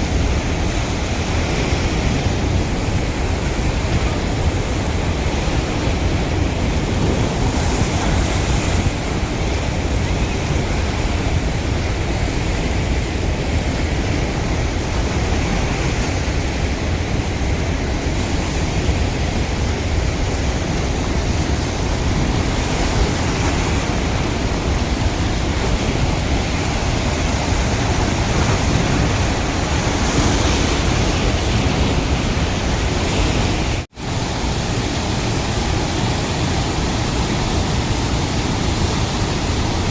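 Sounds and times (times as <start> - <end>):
water rushing through spillway: 0.0 - 39.9.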